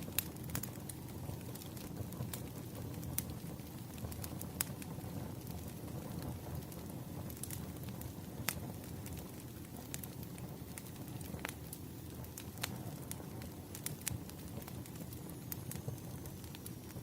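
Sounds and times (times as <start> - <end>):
fire popping: 0.0 - 17.0
low rumble of burning logs: 0.0 - 17.0.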